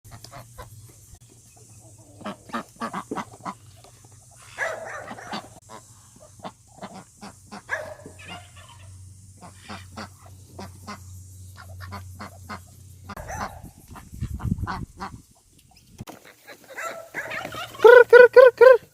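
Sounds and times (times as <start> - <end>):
geese honking: 4.4 - 13.6, 16.3 - 18.8.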